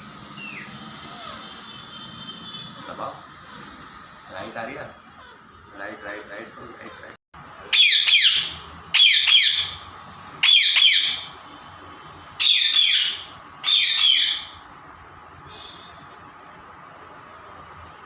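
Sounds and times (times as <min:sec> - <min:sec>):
parrot squawking: 0:00.4 - 0:01.6, 0:07.7 - 0:09.8, 0:10.4 - 0:11.4, 0:12.4 - 0:14.6.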